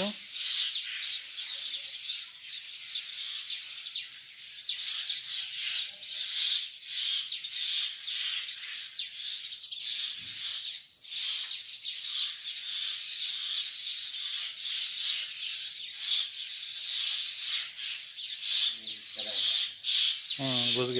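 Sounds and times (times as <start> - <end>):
birds chirping in alarm: 0.0 - 20.9.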